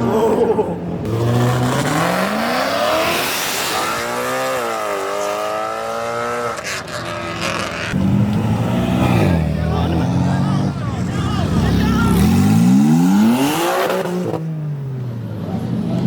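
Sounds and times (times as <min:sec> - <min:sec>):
sports car engine accelerating: 0:07.4 - 0:10.8.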